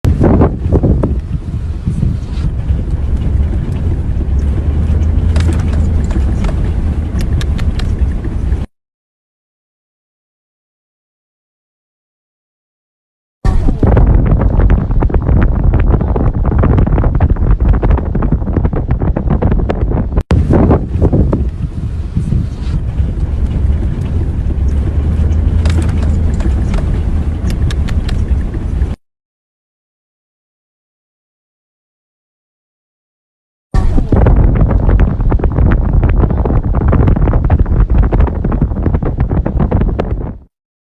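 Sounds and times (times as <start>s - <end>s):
wind buffeting microphone: 0.1s - 8.7s, 13.4s - 29.0s, 33.8s - 40.5s
sharp clicks: 5.1s - 8.0s, 25.5s - 28.5s.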